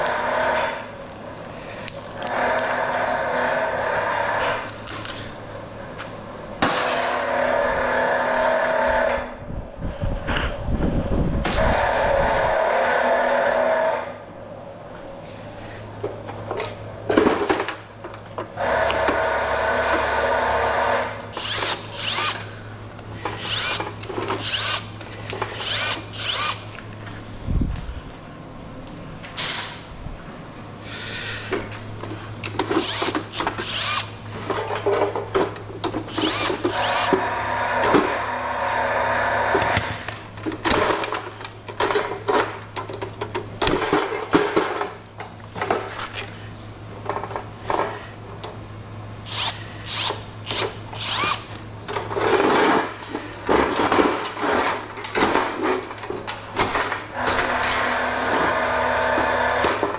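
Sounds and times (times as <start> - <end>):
steady low hum: 0.0 - 59.9
power drill running: 18.6 - 22.6, 23.2 - 26.8, 32.8 - 34.2, 36.1 - 39.9, 49.2 - 51.6.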